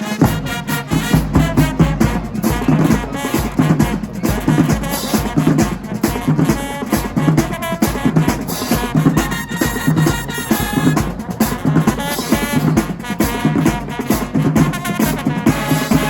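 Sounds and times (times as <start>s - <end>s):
bass and snare drum hits: 0.0s - 16.0s
brass horns sustained notes: 0.0s - 16.0s.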